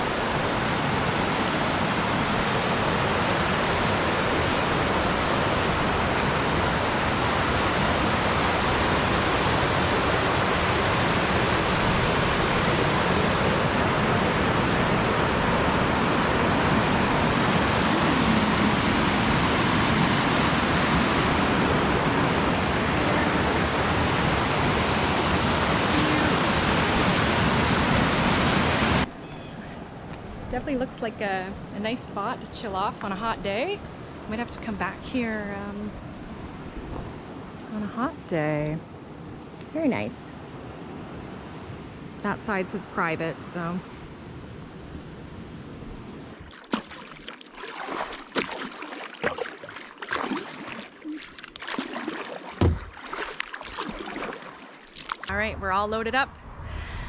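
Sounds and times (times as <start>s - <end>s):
waterfall roaring: 0.0s - 29.0s.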